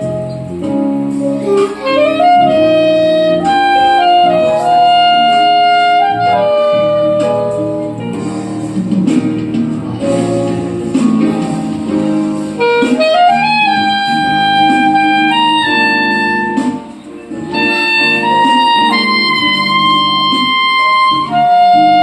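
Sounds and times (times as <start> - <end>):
clarinet melody: 0.0 - 8.9, 10.0 - 22.0
soft chordal accompaniment: 9.8 - 22.0.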